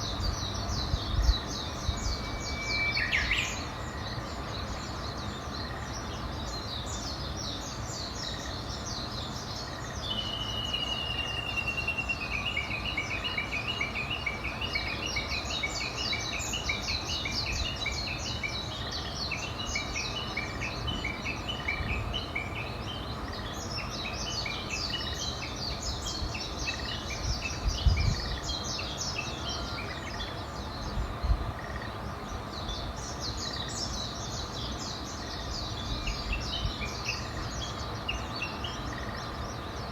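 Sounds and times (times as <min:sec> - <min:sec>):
songbirds chirping and singing: 0:00.0 - 0:39.9
bird long steady whistle: 0:01.6 - 0:05.6, 0:09.8 - 0:18.6.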